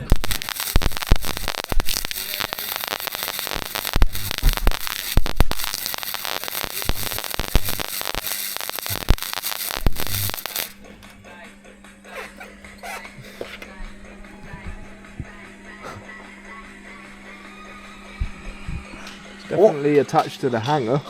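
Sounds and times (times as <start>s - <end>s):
wire-feed welder crackling: 0.0s - 11.2s.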